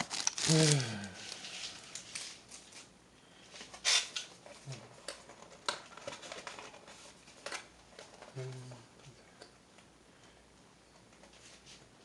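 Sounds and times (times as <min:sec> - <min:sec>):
card box and plastic rustling: 0:00.0 - 0:02.9, 0:03.5 - 0:08.7.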